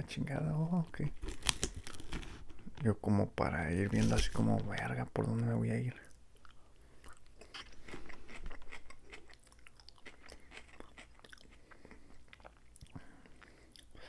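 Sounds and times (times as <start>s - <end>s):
chewing crisp salad: 6.0s - 13.9s.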